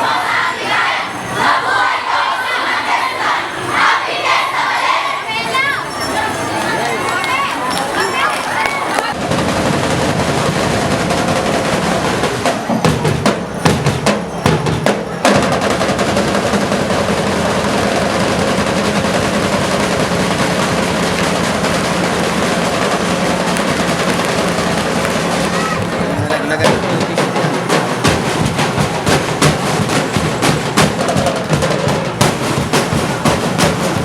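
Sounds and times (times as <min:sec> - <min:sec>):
snare and bass drums playing: 0:09.1 - 0:34.0.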